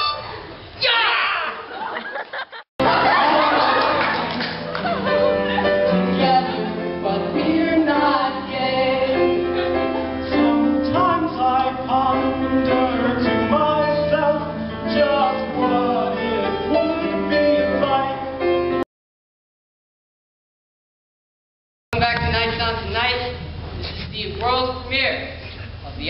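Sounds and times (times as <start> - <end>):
instrumental accompaniment: 2.8 - 18.8
person singing: 2.8 - 18.8.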